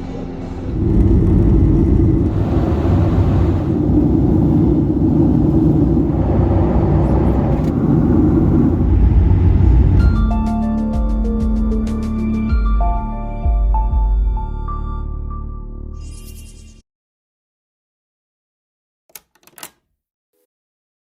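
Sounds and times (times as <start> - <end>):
jet engines rumbling: 0.0 - 10.4.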